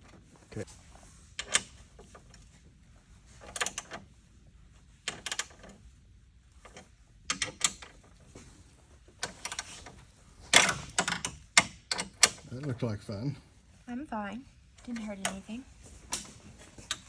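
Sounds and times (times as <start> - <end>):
metallic clicks and clatters: 9.1 - 12.6.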